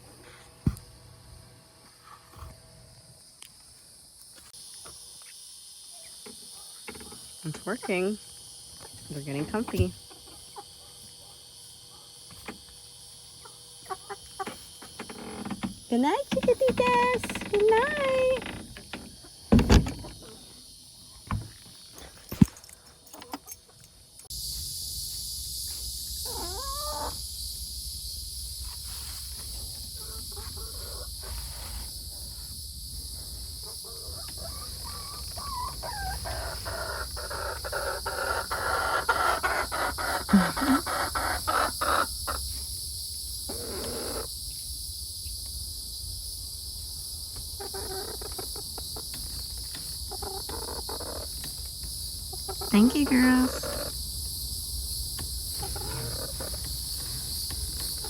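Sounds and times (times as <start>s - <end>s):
crickets chirring: 0.0s - 58.0s
chickens squawking and scuffling: 8.8s - 11.4s, 13.3s - 15.0s, 26.2s - 27.2s, 28.6s - 32.4s, 33.5s - 42.7s, 43.5s - 44.3s, 47.4s - 54.3s, 55.0s - 58.0s.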